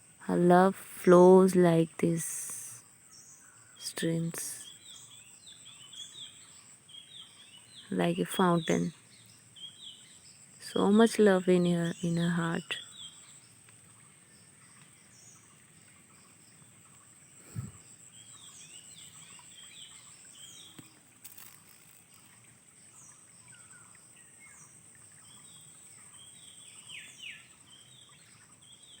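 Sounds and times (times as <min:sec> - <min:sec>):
birds chirping: 0:03.2 - 0:21.5.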